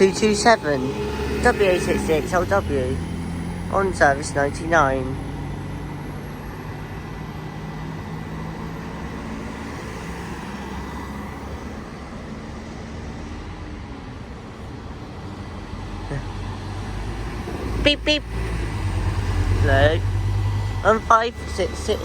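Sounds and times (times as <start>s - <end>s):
bus engine running: 0.0s - 22.0s
road traffic noise: 0.0s - 22.0s.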